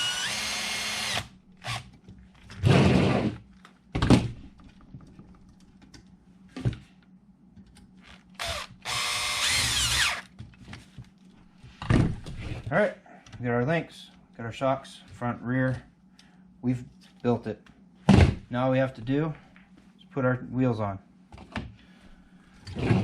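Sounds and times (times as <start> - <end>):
power driver whining: 0.0 - 1.9, 8.1 - 10.3.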